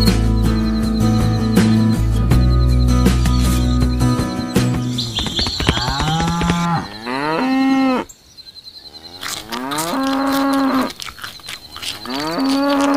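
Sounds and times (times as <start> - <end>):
cattle mooing: 5.7 - 8.1, 12.0 - 12.9.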